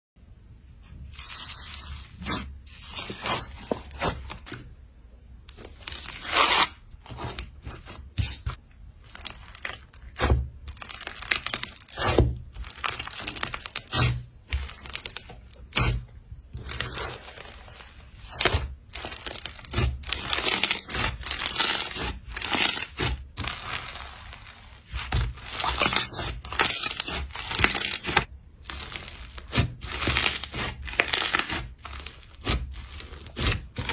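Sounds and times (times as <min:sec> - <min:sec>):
slime crackling and popping: 0:09.0 - 0:15.9, 0:16.6 - 0:33.9.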